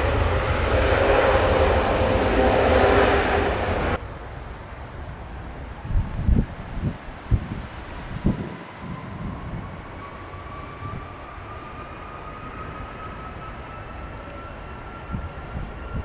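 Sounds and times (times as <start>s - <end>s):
jet engines roaring: 0.0s - 4.0s.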